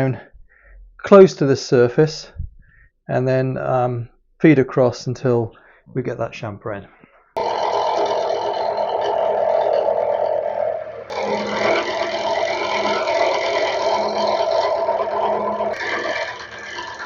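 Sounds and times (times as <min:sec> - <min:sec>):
machine hum: 0:07.4 - 0:17.0
milling cutter cutting metal: 0:07.4 - 0:17.0.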